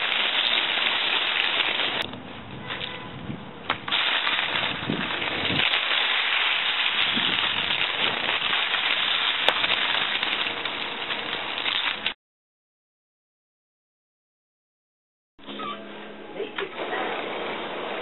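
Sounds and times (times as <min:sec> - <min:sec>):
toy lawn mower crackling rattle: 0:00.0 - 0:02.0, 0:03.9 - 0:12.2.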